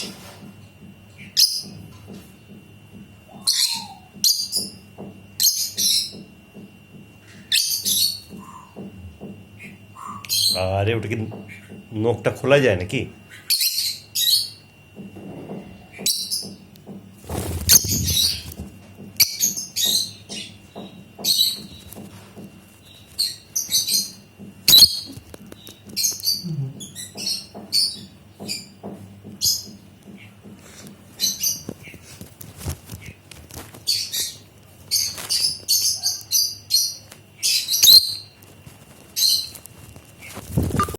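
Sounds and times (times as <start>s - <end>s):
birds chirping: 3.2s - 12.0s, 17.4s - 32.1s, 33.0s - 38.4s.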